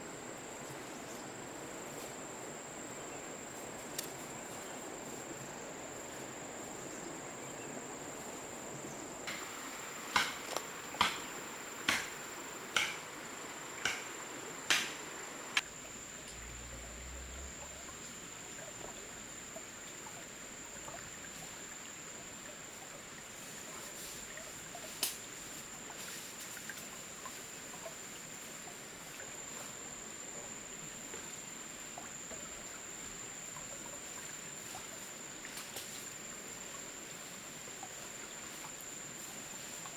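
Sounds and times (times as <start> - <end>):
forest ambience: 0.0 - 39.9
sharp knocks: 9.3 - 13.2, 13.8 - 15.6.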